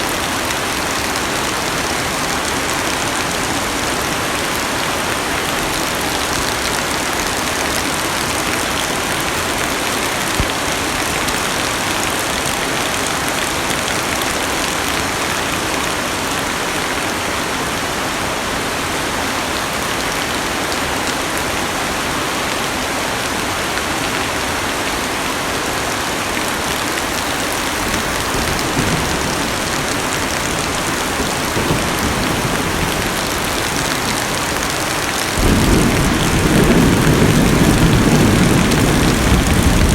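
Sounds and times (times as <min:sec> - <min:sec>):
heavy rain on car roof: 0:00.0 - 0:16.7, 0:25.6 - 0:39.9.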